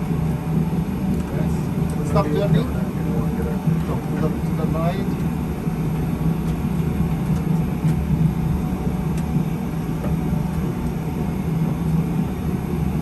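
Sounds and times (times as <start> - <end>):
simulated aircraft engine and airflow: 0.0 - 13.0.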